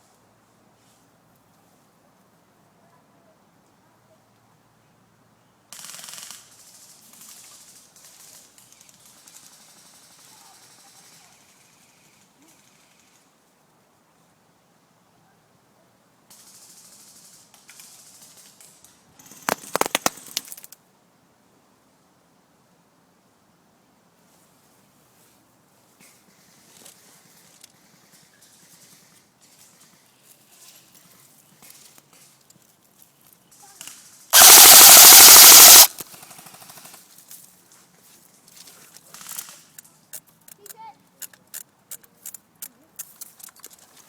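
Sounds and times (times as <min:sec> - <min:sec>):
airsoft rifle firing full auto: 0:19.5 - 0:20.2, 0:34.4 - 0:36.0
sharp clicks or cracks: 0:19.5 - 0:20.7, 0:34.4 - 0:36.0.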